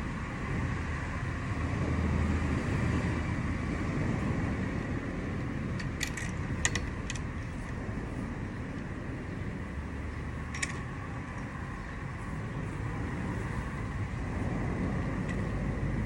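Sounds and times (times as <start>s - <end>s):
low outdoor rumble: 0.0s - 16.0s
sharp clicks: 5.8s - 7.8s, 10.4s - 11.0s.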